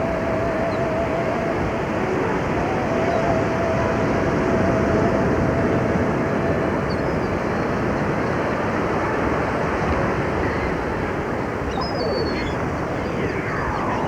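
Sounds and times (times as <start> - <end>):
wind on microphone: 0.0 - 14.0
surf rushing: 8.8 - 14.0
faint high chirps: 11.8 - 14.0.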